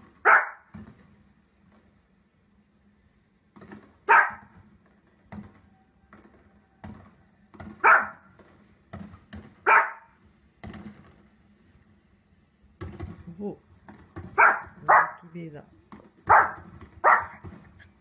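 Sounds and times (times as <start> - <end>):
dog barking: 0.2 - 0.7, 4.1 - 4.5, 7.8 - 8.3, 9.6 - 10.2, 14.4 - 15.2, 16.3 - 17.4.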